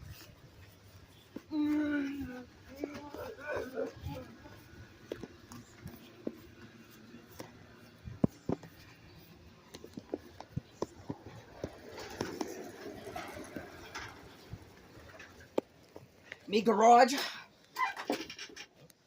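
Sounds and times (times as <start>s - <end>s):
footsteps: 0.0s - 16.5s
faint voice: 1.4s - 4.7s.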